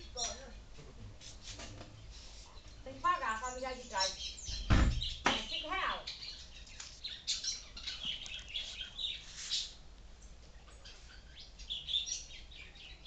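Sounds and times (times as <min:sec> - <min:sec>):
birds chirping: 0:00.0 - 0:00.6, 0:01.3 - 0:13.0.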